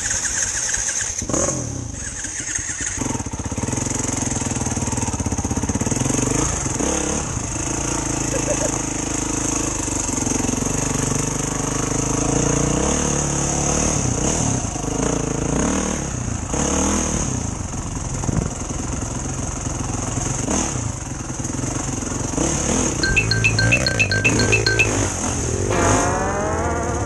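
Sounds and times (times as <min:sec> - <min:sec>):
short high electronic beeps: 0:23.0 - 0:26.0
motorcycle engine revving: 0:25.5 - 0:27.0.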